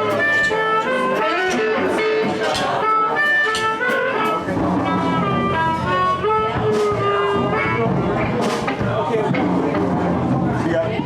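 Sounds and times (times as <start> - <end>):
harmonica: 0.0 - 8.4
guitar: 0.0 - 11.0
cymbal or drum hits: 3.9 - 10.0.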